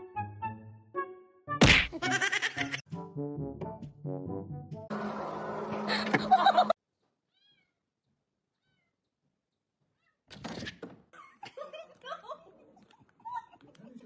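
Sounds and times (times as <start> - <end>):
music: 0.0 - 5.9
cat meowing: 7.3 - 7.8, 8.6 - 9.0.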